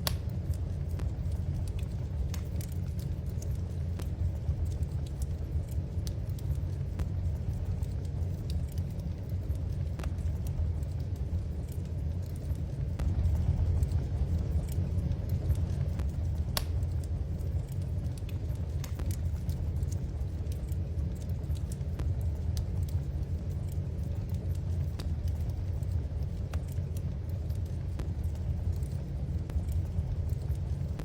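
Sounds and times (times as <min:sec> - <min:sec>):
low fire rumble: 0:00.0 - 0:31.0
wood fire crackling and popping: 0:00.0 - 0:31.0.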